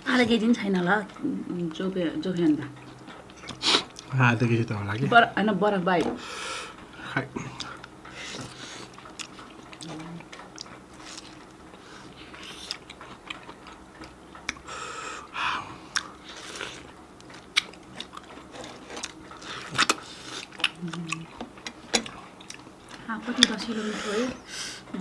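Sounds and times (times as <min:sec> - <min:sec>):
biting and chewing mango: 0:07.5 - 0:14.7, 0:15.7 - 0:23.6.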